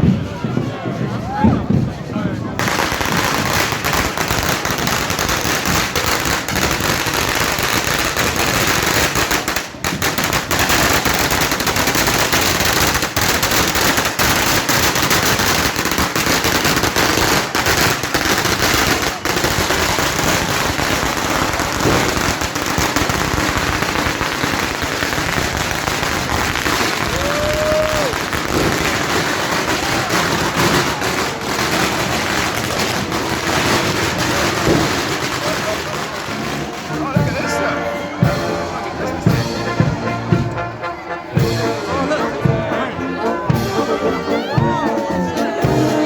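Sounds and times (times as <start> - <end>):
firecrackers cracking and popping: 2.6 - 37.6.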